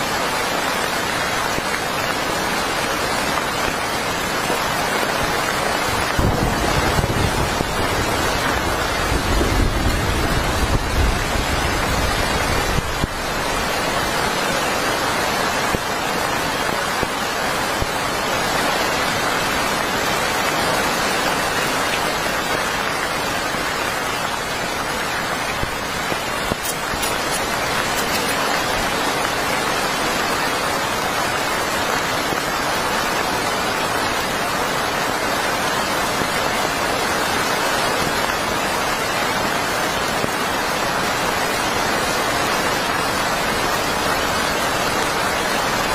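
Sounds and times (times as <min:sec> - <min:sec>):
heavy rain: 0:00.0 - 0:45.9
low wind rumble: 0:05.7 - 0:14.7.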